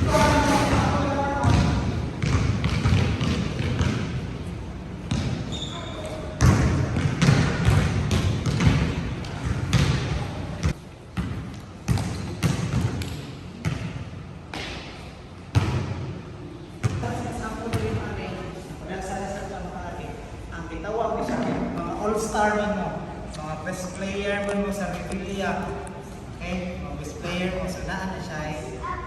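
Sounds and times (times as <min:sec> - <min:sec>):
voices: 0:00.0 - 0:01.8
basketballs bouncing on court floor: 0:00.0 - 0:04.4, 0:05.0 - 0:16.1, 0:16.8 - 0:18.1.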